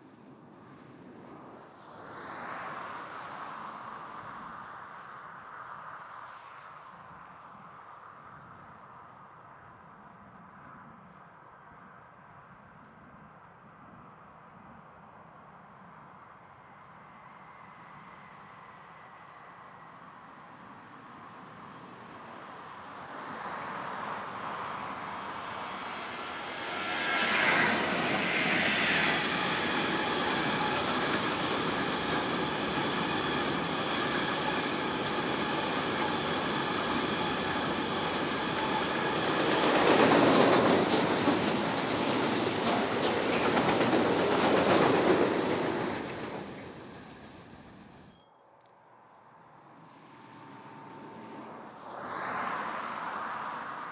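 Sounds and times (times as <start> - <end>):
train whine: 20.6 - 48.3, 49.8 - 52.2
train wheels clattering: 26.2 - 47.5.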